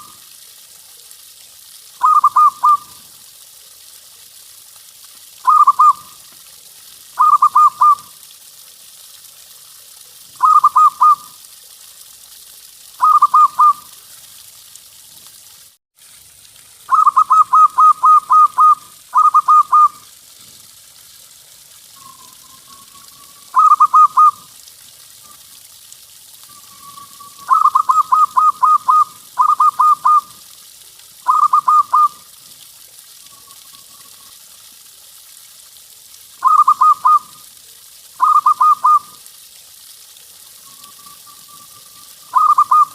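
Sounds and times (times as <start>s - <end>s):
faint steady hiss: 0.0s - 42.9s
dove cooing: 2.0s - 2.9s, 5.4s - 6.1s, 7.2s - 8.0s, 10.4s - 11.2s, 16.9s - 20.0s, 22.8s - 24.4s, 27.4s - 30.3s, 31.3s - 32.2s, 36.4s - 37.2s, 42.3s - 42.9s.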